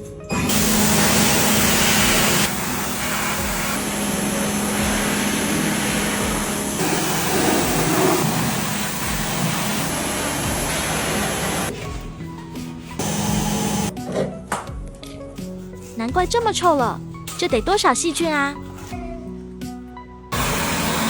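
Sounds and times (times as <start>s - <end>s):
motor hum: 0.3s - 11.7s, 13.0s - 13.9s, 20.3s - 21.0s
pressure washer spraying water: 0.3s - 11.8s, 13.0s - 13.9s, 20.3s - 21.0s.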